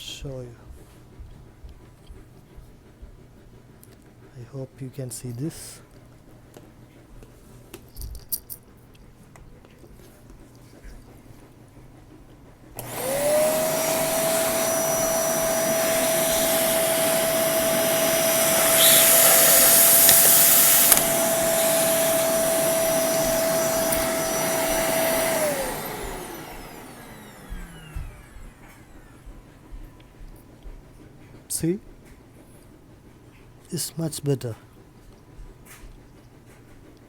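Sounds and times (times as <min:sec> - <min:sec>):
vacuum cleaner motor whine: 0:12.7 - 0:31.1.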